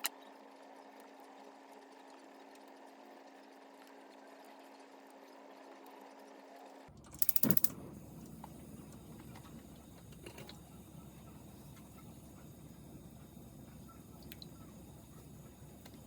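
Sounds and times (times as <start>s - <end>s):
rapid sharp clicks: 7.1s - 7.8s.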